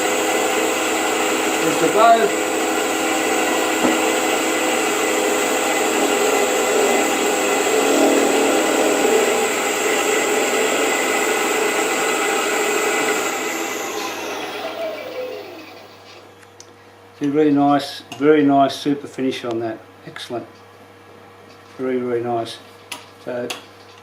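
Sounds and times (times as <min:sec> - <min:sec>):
woodworking lathe whirring: 0:00.0 - 0:16.3.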